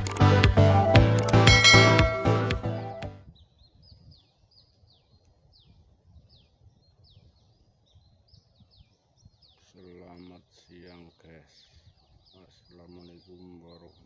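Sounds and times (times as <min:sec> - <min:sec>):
intro music: 0:00.0 - 0:03.2
soft outdoor background: 0:00.0 - 0:14.0
bird calling with whistled notes: 0:01.5 - 0:10.4.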